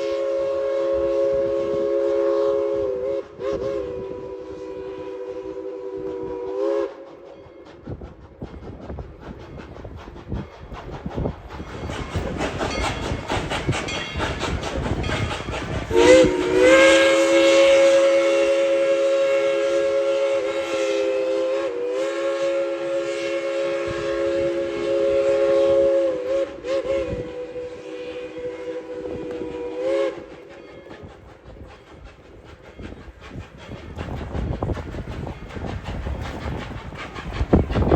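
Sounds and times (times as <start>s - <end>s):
steam whistle chord blast: 0.0s - 7.1s, 15.9s - 30.4s
steam locomotive chugging: 0.0s - 37.9s.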